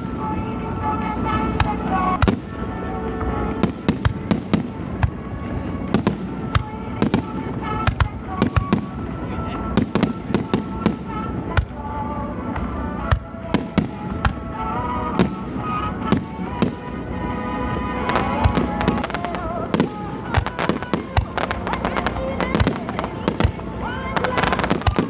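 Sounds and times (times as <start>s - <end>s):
fireworks bursting with bangs: 0.0s - 25.0s.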